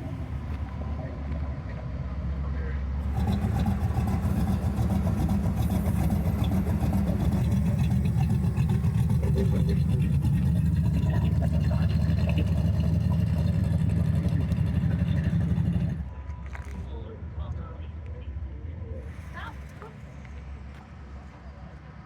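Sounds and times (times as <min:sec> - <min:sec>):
car engine running: 0:03.0 - 0:16.1.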